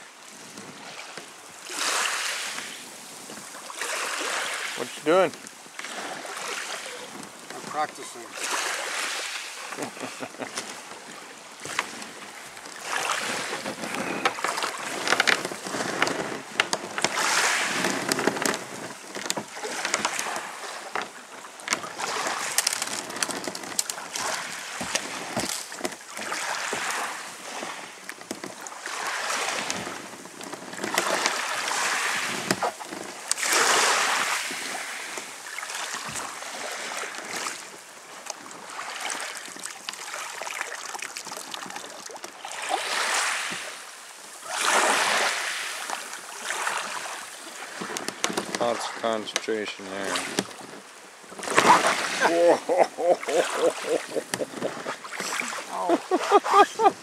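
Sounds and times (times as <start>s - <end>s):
water splashing around a kayak: 0.0s - 57.0s
small knocks and clicks: 13.7s - 17.2s.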